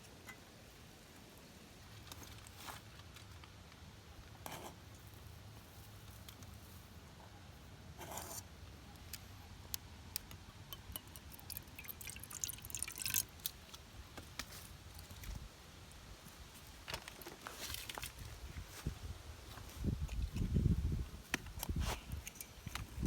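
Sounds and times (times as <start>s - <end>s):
water dripping: 10.2s - 13.6s.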